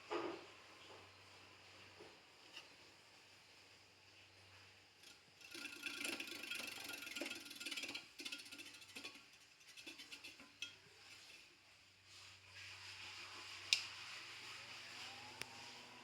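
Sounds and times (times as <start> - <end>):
rapid mechanical clicking and rattling: 5.0 - 11.3.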